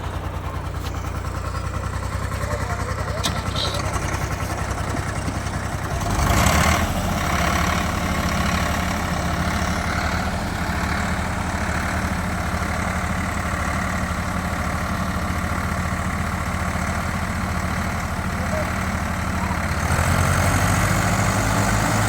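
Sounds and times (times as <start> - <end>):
tractor diesel engine idling: 0.0 - 22.0.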